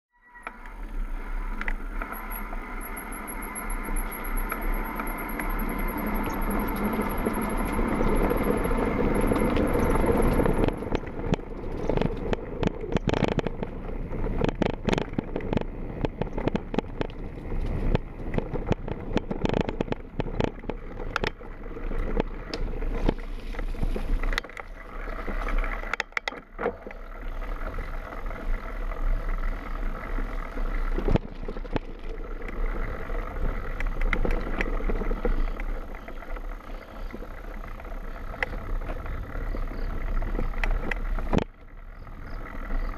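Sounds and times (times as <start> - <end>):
wind noise: 0.4 - 26.0
tyre noise: 0.5 - 25.9
bike frame and chain rattling: 0.7 - 42.9.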